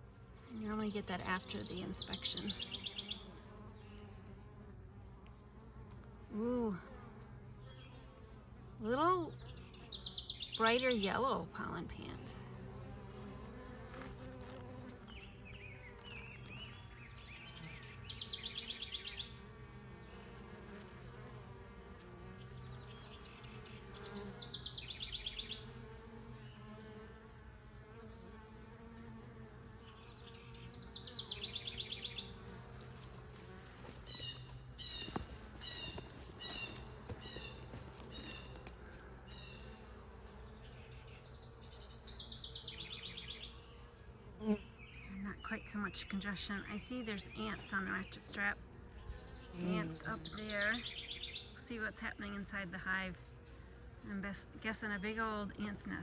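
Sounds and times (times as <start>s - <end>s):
honeybees buzzing: 0.0s - 56.0s
bird chirps: 0.4s - 4.1s, 9.3s - 11.0s, 15.1s - 19.4s, 22.5s - 25.7s, 29.9s - 32.4s, 40.6s - 43.7s, 49.1s - 51.6s
bird trilling song: 0.4s - 4.1s, 9.3s - 11.1s, 14.3s - 19.4s, 22.4s - 25.7s, 29.8s - 32.4s, 40.6s - 43.7s, 49.1s - 51.6s.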